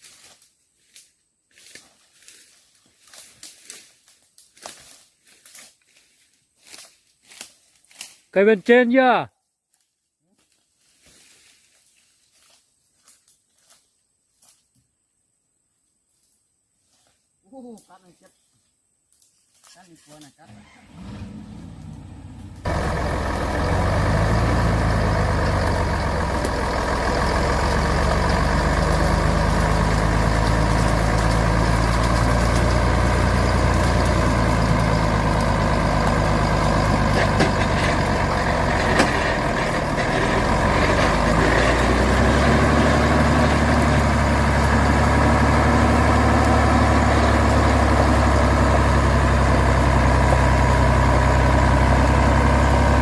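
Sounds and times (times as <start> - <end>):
truck engine running: 20.6 - 53.0.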